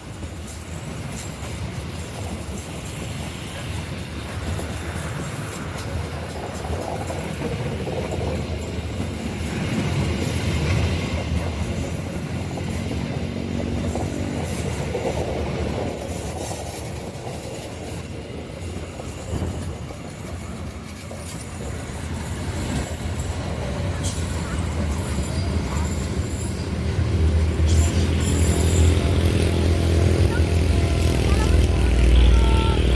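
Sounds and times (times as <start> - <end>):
train rumbling over bridge: 0.0 - 32.9.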